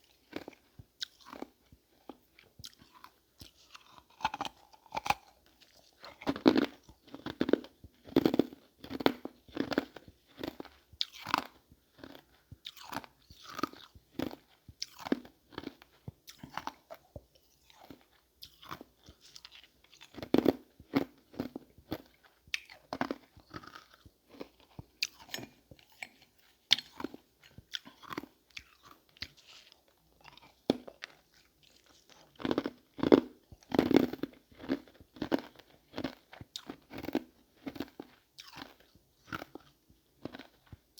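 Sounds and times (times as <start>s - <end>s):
ice being chewed: 0.0s - 40.9s.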